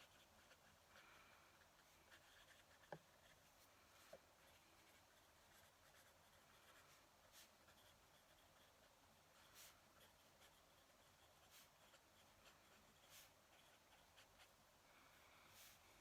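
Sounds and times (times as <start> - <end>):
fountain pen scratching on paper: 0.0 - 0.8, 1.6 - 3.4, 4.4 - 14.6.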